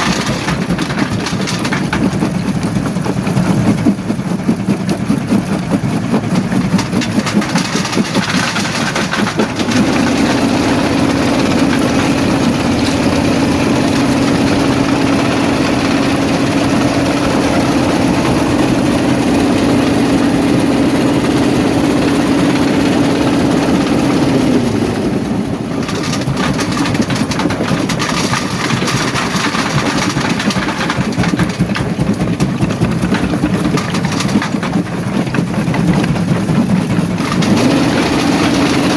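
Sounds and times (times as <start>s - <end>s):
jaw crusher machinery noise: 0.0s - 38.9s
steady low hum: 9.4s - 24.6s.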